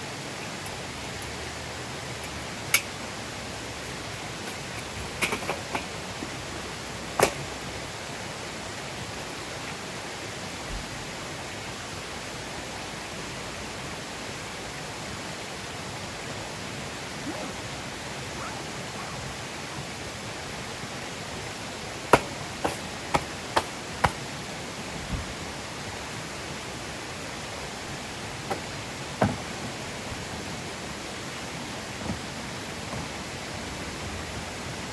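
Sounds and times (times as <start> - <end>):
campfire hissing: 0.0 - 34.9.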